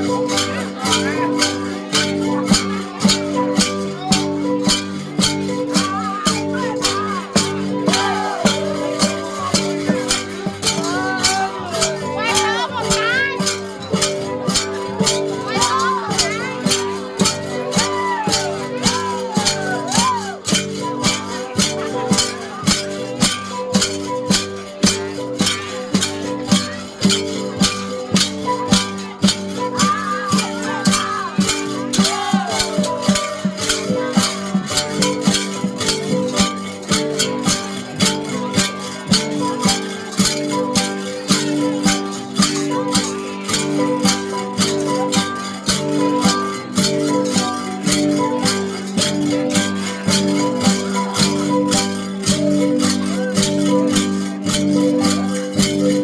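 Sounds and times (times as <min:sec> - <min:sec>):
gong ensemble playing: 0:03.9 - 0:20.9.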